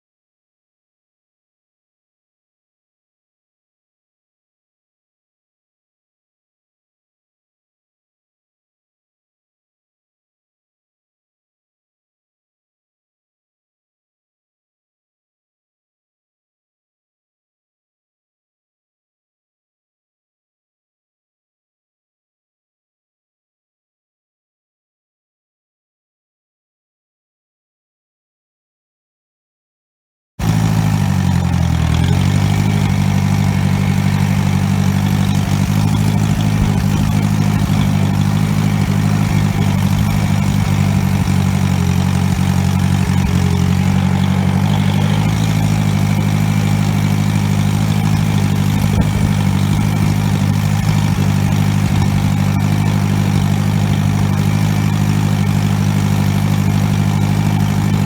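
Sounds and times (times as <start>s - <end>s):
tractor engine running: 30.4s - 58.0s.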